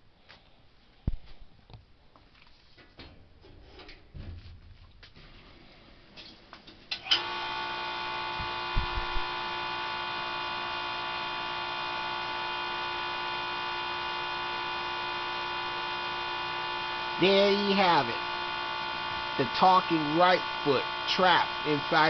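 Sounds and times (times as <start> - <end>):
buzzy electrical hum: 6.9 - 22.0.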